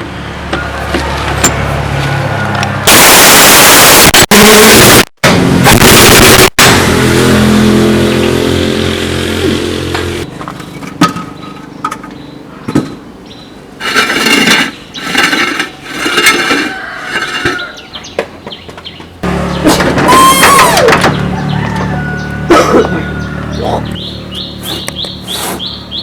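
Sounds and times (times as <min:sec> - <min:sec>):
buzzing tool noise: 0:02.9 - 0:10.3
motor hum: 0:05.3 - 0:10.4, 0:19.2 - 0:26.0.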